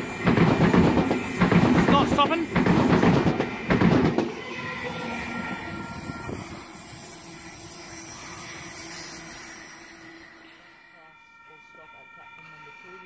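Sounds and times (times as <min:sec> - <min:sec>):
electric train passing: 0:00.0 - 0:13.0
wheel squeal: 0:05.4 - 0:10.8.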